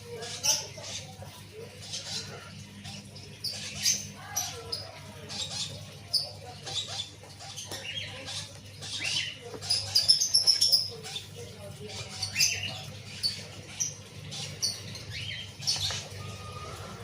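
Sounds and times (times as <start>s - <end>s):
parrot squeaks and chirps: 1.8s - 11.3s.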